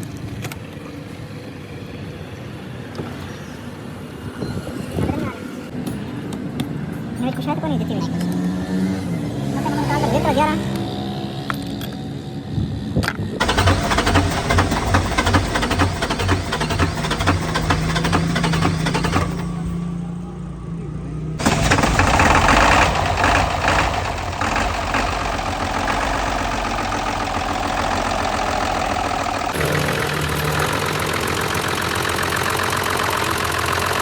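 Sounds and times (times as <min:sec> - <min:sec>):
truck diesel engine running: 0:13.4 - 0:34.0.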